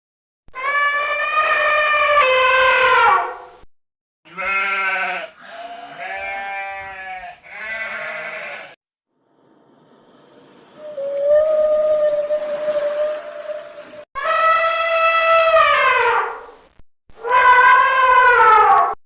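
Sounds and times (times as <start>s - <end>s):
animal bleating: 4.3s - 8.8s.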